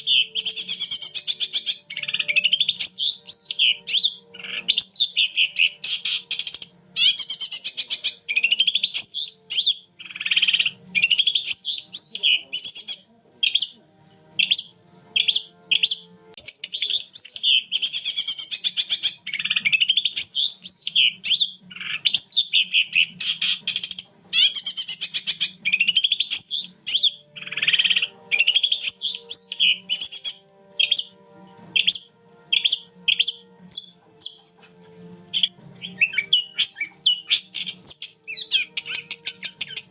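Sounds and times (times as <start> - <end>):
shrike singing rapid chattering notes: 0.0 - 13.8, 14.4 - 34.7, 35.3 - 39.9.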